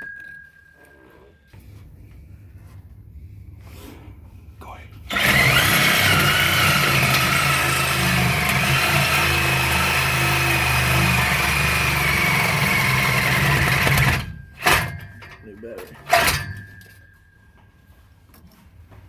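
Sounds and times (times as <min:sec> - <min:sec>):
reciprocating saw cutting metal pipe: 0:05.1 - 0:15.2, 0:16.0 - 0:16.7.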